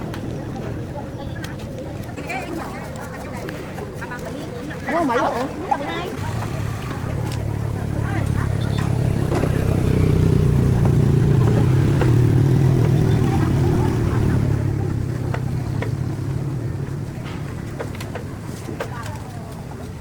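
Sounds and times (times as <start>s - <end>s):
engine humming: 5.4s - 20.0s.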